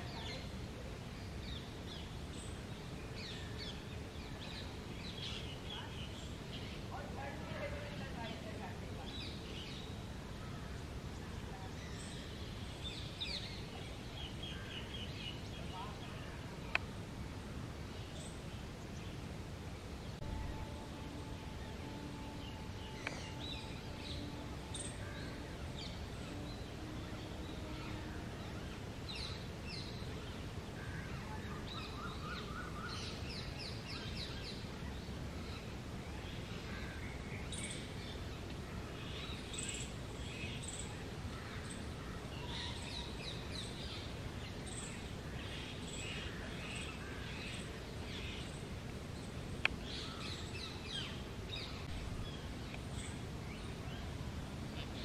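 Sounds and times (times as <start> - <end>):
low outdoor rumble: 0.0 - 32.5.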